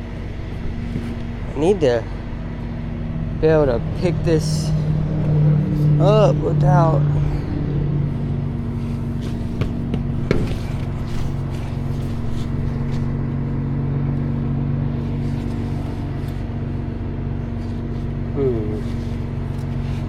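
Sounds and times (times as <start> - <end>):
tow truck engine idling: 0.0 - 20.0
sharp knocks: 9.5 - 10.8.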